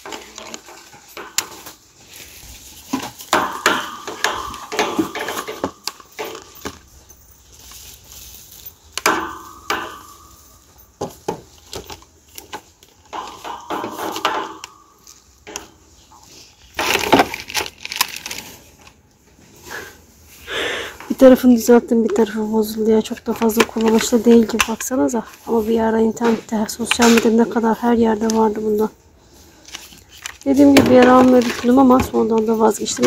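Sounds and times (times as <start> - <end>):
plastic mop parts clicking and rattling: 0.0 - 6.8, 11.0 - 19.0, 23.1 - 28.9, 29.6 - 33.0.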